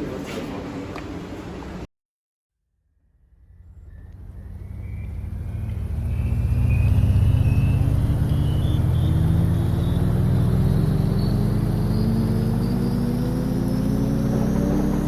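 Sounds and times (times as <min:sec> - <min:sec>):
car engine accelerating: 0:03.0 - 0:15.0
road noise: 0:03.0 - 0:15.0.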